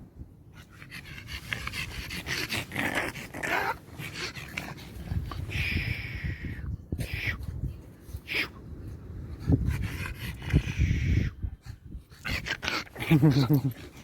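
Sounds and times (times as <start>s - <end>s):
dog panting: 0.6s - 5.6s, 9.4s - 14.0s.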